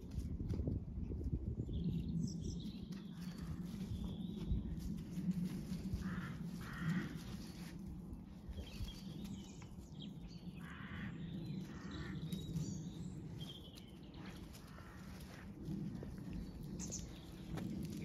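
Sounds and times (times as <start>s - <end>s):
harsh caw-like bird calls: 6.0s - 7.6s, 10.6s - 12.2s, 14.6s - 15.4s.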